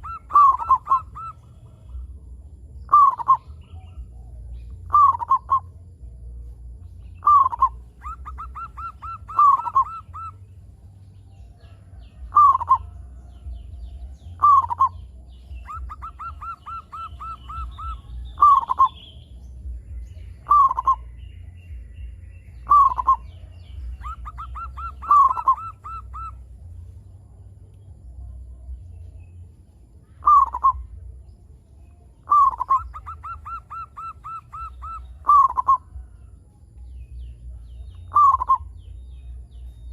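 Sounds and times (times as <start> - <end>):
doves cooing: 0.0 - 6.0, 7.0 - 21.9, 22.6 - 27.0, 30.2 - 31.2, 32.2 - 36.4, 37.9 - 38.9
low steady hum: 0.0 - 39.9.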